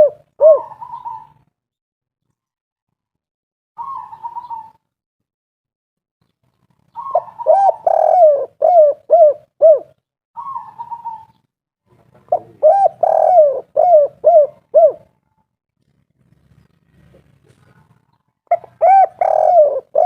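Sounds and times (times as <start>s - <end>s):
dove cooing: 0.0s - 1.4s, 3.8s - 4.8s, 6.9s - 11.4s, 12.0s - 15.2s, 17.1s - 20.0s.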